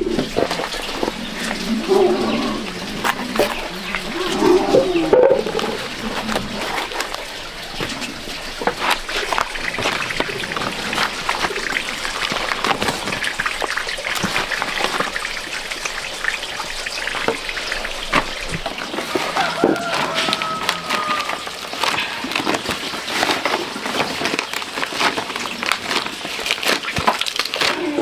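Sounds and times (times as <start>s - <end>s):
water trickling and splashing: 0.0s - 28.0s.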